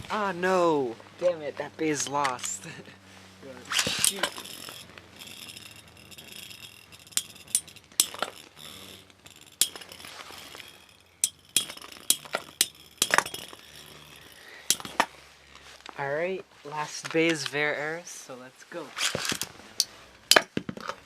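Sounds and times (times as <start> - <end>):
spinning tops clashing: 3.6 - 15.1
sharp metallic clinks: 3.6 - 15.2, 19.2 - 21.0.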